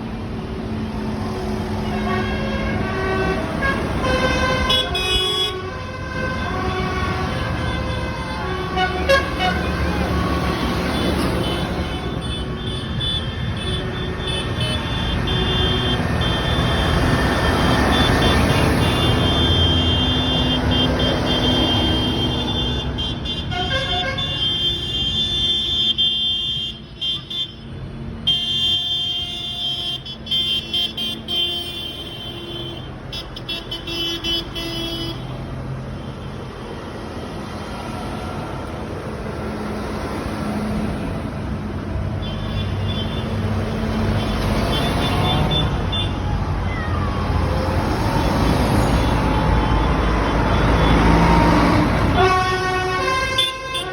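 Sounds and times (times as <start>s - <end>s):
tractor engines running: 0.0s - 25.4s
horns sounding: 1.6s - 35.4s, 48.4s - 53.9s.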